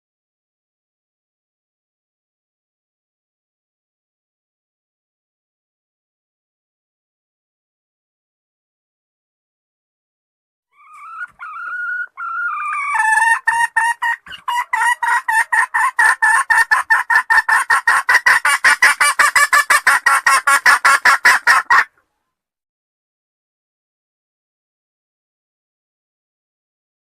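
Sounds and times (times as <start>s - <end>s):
junglefowl call: 10.7s - 22.0s.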